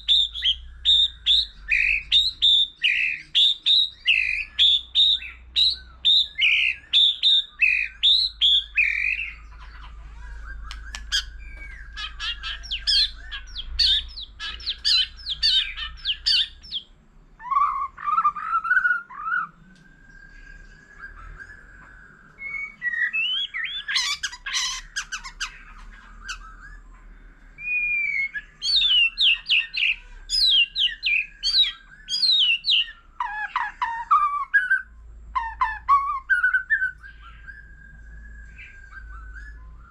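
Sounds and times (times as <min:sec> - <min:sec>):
bird singing whistles and chips: 0:10.5 - 0:27.0, 0:27.6 - 0:39.9.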